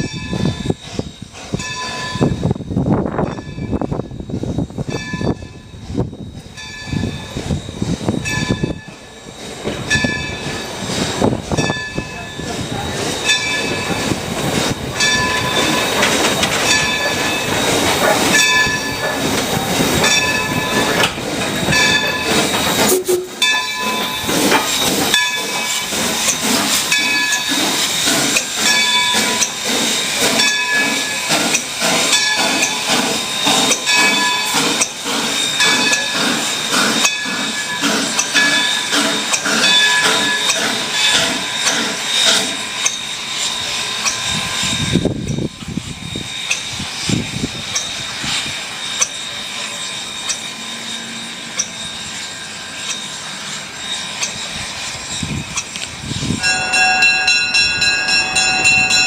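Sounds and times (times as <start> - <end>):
locomotive bell ringing: 0.0 - 46.8, 47.6 - 59.0
steam hissing: 0.0 - 59.0.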